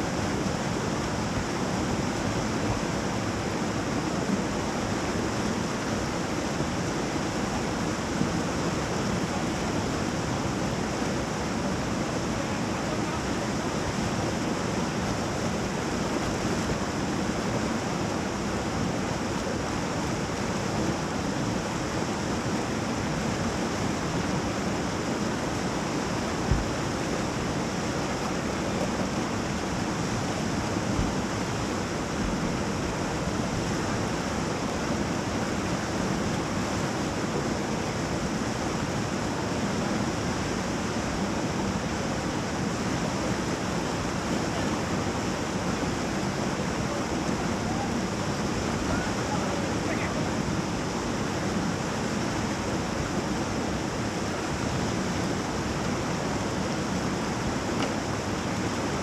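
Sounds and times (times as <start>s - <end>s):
whitewater rushing: 0.0s - 59.0s
low thump: 26.5s - 26.7s.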